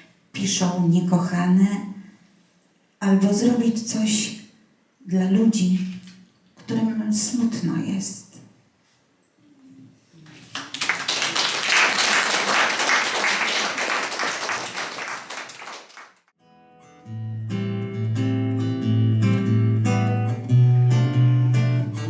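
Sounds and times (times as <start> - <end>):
audience applauding: 10.3 - 16.3
acoustic guitar picking: 16.4 - 22.0.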